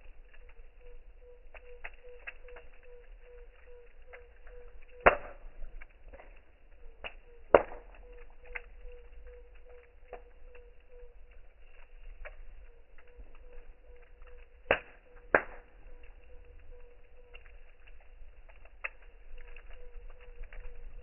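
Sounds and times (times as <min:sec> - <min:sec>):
campfire crackling and snapping: 0:00.0 - 0:21.0.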